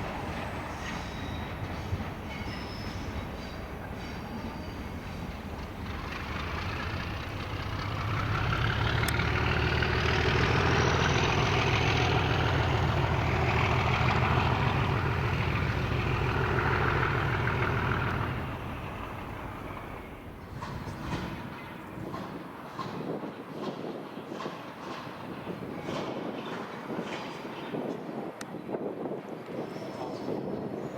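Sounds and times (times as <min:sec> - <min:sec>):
diesel train engine throbbing: 0:00.0 - 0:23.3.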